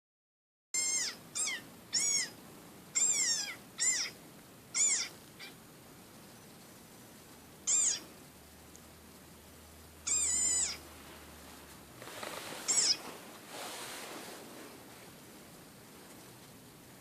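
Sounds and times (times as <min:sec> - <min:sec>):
frog squeaking: 0:00.8 - 0:05.6, 0:07.6 - 0:08.1, 0:10.0 - 0:10.9, 0:12.6 - 0:13.0.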